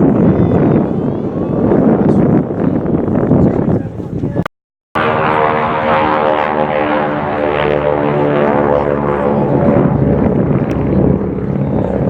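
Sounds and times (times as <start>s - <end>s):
aircraft engine flying over: 5.0s - 12.0s.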